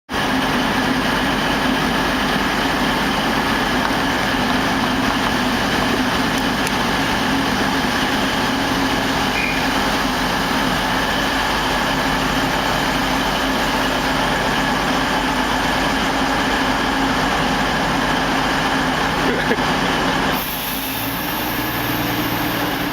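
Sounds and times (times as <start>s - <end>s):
train engine droning: 0.1s - 22.9s.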